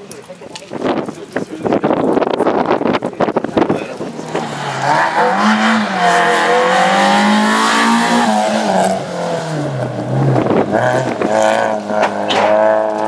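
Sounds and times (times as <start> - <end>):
car engine accelerating: 3.6 - 13.0.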